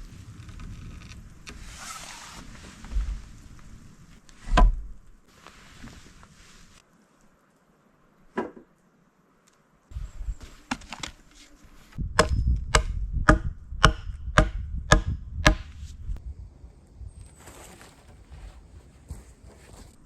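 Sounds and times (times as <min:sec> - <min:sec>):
wood being chopped: 0:12.2 - 0:15.7.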